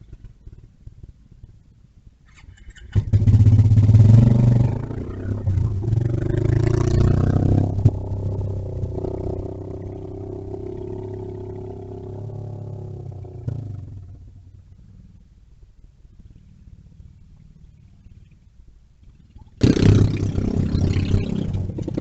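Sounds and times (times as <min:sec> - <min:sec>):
small motorbike engine passing: 0:02.3 - 0:15.2, 0:19.1 - 0:22.0.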